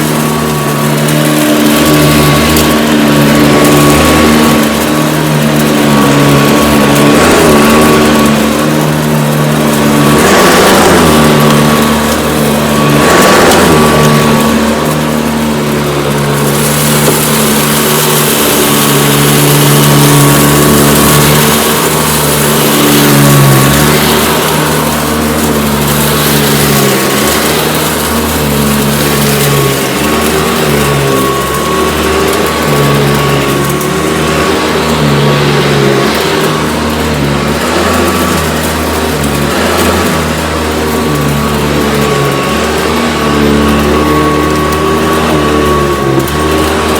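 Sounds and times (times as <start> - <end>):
vacuum cleaner running: 0.0 - 46.9.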